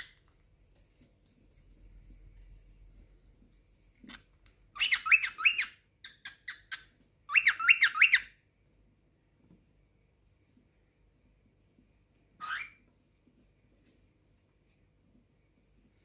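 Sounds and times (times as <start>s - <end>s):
cockatiel chirping: 4.7s - 8.4s, 12.4s - 12.9s.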